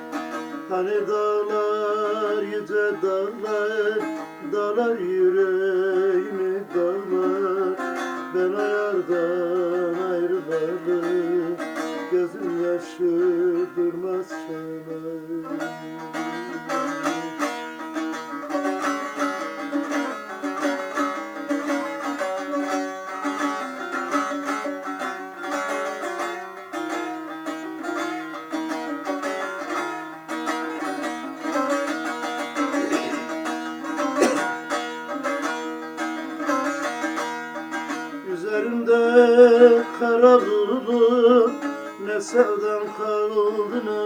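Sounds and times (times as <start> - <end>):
plucked string instruments: 0.0 - 44.0.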